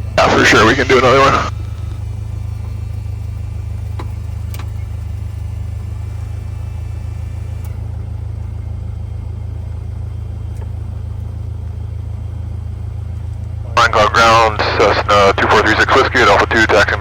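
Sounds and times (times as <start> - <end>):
aircraft piston engine drone: 0.0 - 8.0, 13.7 - 17.0.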